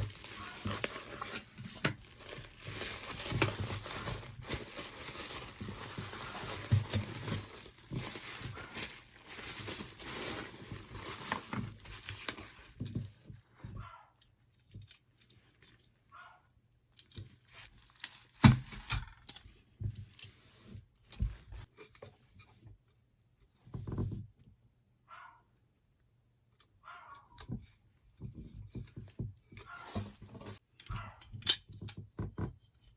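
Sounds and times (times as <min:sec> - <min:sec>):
packaging rustling and tearing: 0:00.0 - 0:12.8, 0:17.4 - 0:19.3.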